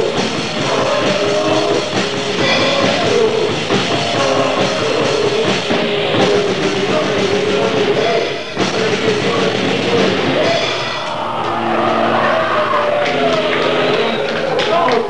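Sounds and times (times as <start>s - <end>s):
fast drum kit: 0.0s - 15.0s
heavily distorted guitar: 0.0s - 15.0s.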